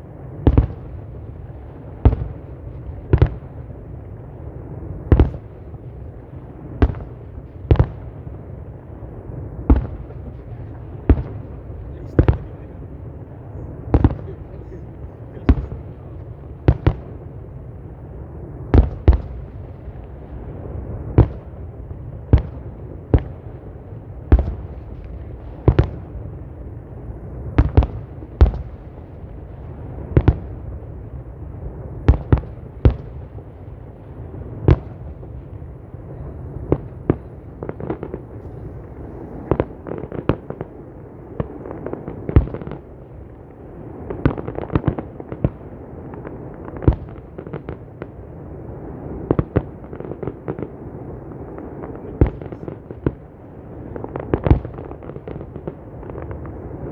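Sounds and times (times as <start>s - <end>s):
crackling firework bursts: 0.0s - 56.9s
fireworks bangs: 0.3s - 20.6s, 31.7s - 56.9s
distant booms rumbling: 35.8s - 47.8s.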